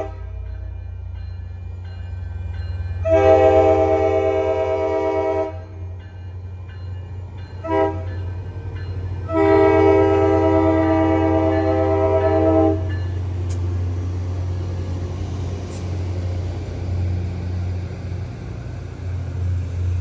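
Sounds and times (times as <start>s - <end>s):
train air horn blasts: 0.0s - 0.4s, 3.0s - 5.8s, 7.6s - 8.1s, 9.2s - 12.9s
train rumble: 0.0s - 20.0s.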